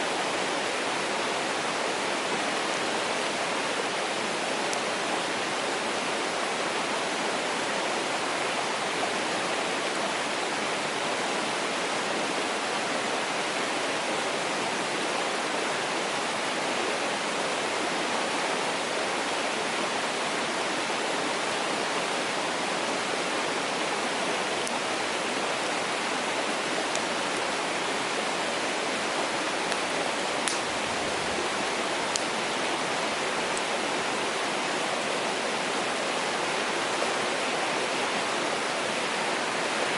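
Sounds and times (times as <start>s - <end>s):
mountain stream rushing: 0.0s - 39.9s
wood fire crackling: 30.4s - 32.3s.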